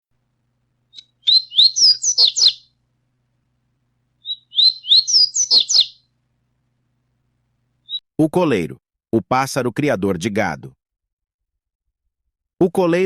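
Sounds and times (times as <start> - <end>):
bird whistling song: 0.9 - 2.7, 4.2 - 6.1, 7.8 - 8.0.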